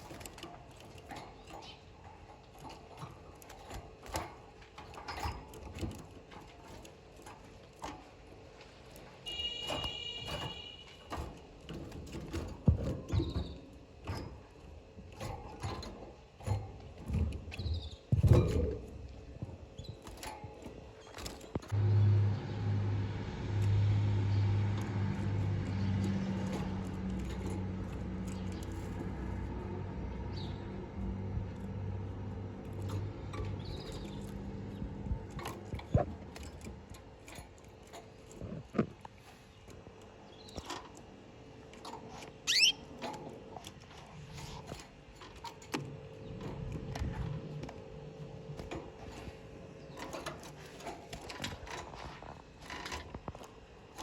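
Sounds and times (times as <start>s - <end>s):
birds clicking and tapping in cage: 0.0s - 54.0s
low engine-like hum: 21.2s - 39.3s
canary rising chirp: 42.4s - 42.9s.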